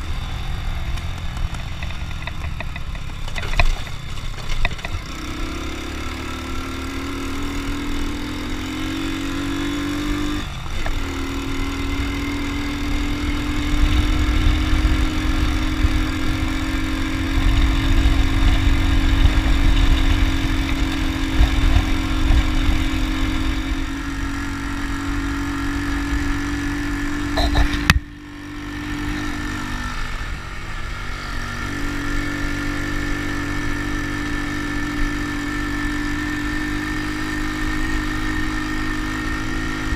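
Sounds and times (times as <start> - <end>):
motorcycle engine running: 0.0 - 39.9
wind rumble on microphone: 12.9 - 23.9.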